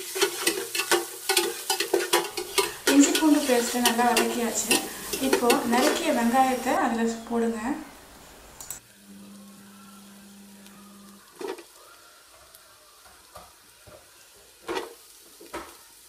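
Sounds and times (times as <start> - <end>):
metal spoon scraping a pot: 0.0 - 6.6
onions sizzling in ghee: 0.0 - 16.0.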